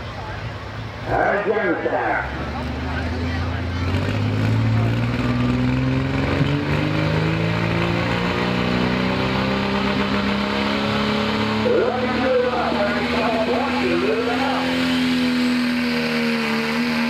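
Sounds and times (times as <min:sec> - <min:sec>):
diesel engine under full load: 0:00.0 - 0:17.0.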